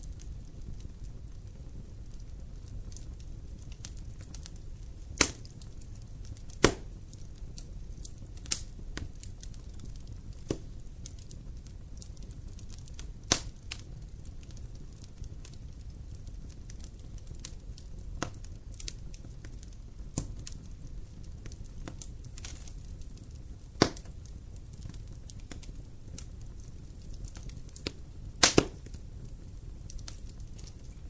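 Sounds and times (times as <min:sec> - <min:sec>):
fire crackling in fireplace: 0:00.0 - 0:31.0
loud sharp pops: 0:05.2 - 0:05.5, 0:06.6 - 0:06.9, 0:10.5 - 0:10.7, 0:23.8 - 0:24.1, 0:28.4 - 0:28.8.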